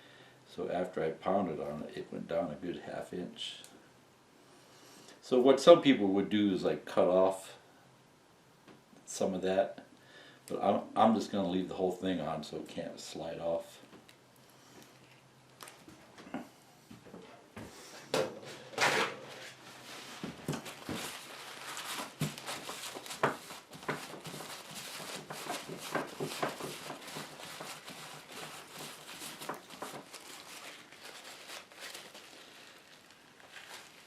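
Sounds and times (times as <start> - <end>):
rustling and crinkling: 13.8 - 34.0.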